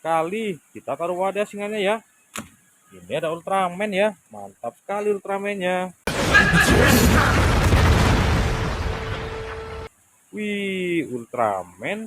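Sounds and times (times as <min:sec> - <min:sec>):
faint steady tone: 0:00.0 - 0:06.0
explosion rumble: 0:06.1 - 0:09.9.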